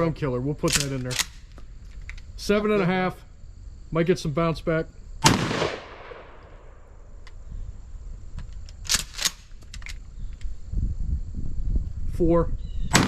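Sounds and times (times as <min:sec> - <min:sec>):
shotgun blast echo: 0:05.2 - 0:06.7.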